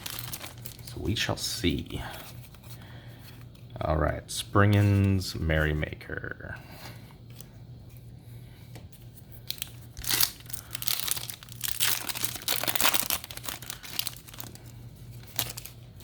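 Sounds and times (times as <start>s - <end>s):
foil wrapper crinkling and tearing: 0.0s - 1.8s, 9.4s - 16.0s.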